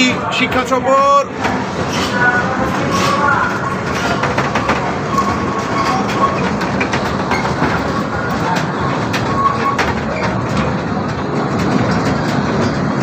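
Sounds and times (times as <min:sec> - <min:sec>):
ride train rumbling: 0:00.0 - 0:13.0.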